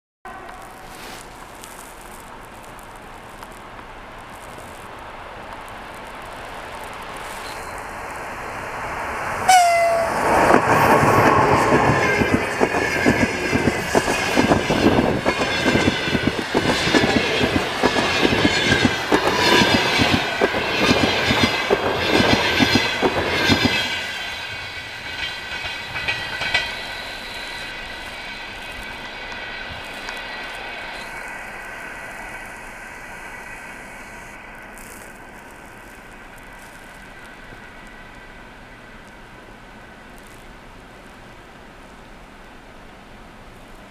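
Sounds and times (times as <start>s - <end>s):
train passing at speed: 4.6s - 43.9s
train wheels clickety-clack: 7.2s - 32.8s
thin steady whine: 23.9s - 43.9s.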